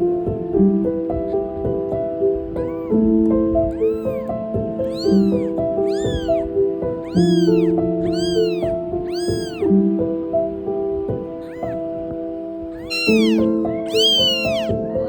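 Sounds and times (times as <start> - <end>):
piano music: 0.0 - 15.0
kitten mewing: 2.4 - 9.7, 11.1 - 15.0.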